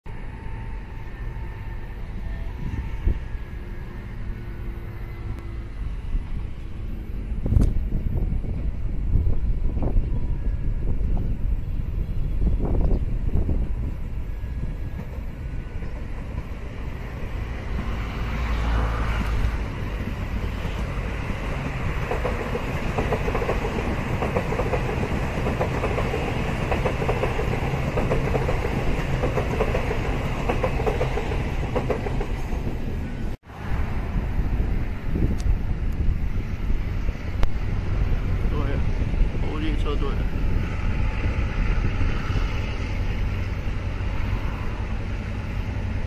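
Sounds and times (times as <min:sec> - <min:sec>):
train wheels clicking over rail joints: 0:19.2 - 0:33.3.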